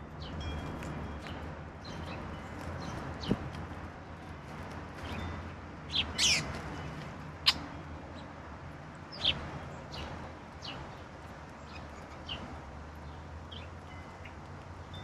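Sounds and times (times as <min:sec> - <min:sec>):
songbirds calling: 0:05.0 - 0:08.3, 0:09.1 - 0:15.0.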